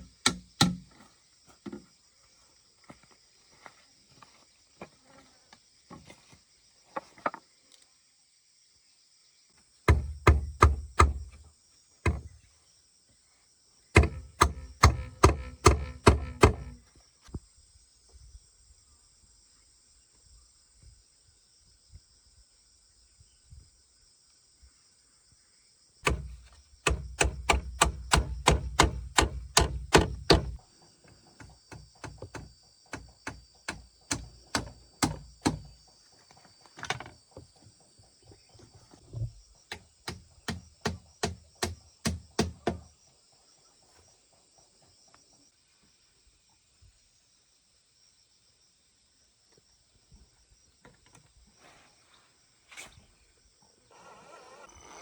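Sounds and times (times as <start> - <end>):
hand tool striking wood: 0.0 - 0.9, 9.9 - 11.4, 12.1 - 12.4, 14.0 - 16.8, 26.0 - 30.6, 31.4 - 35.7, 39.7 - 42.9
insects droning: 0.0 - 55.0.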